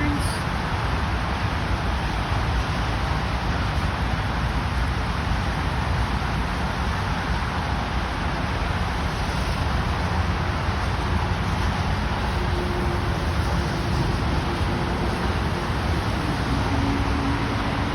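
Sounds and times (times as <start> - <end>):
faint engine whine: 4.6 - 17.9
jet engines roaring: 7.4 - 17.9.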